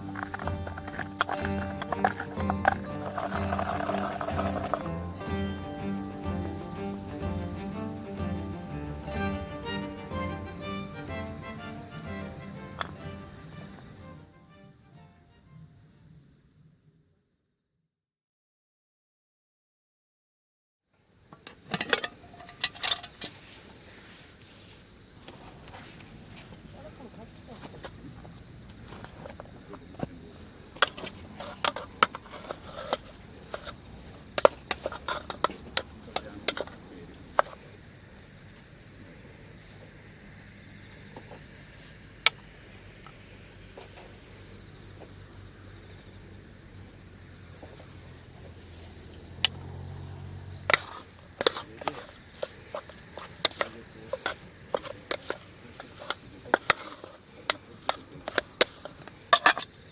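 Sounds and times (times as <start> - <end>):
cooking utensils clicking: 0.0 - 5.0
insects chirring: 0.0 - 17.6, 21.0 - 59.9.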